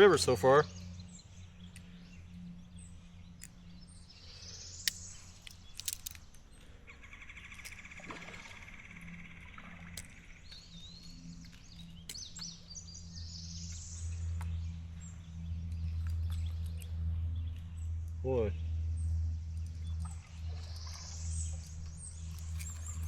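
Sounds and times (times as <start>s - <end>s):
bird chirps: 0.0s - 23.0s
low steady hum: 0.0s - 23.0s
sharp clicks: 4.7s - 6.7s.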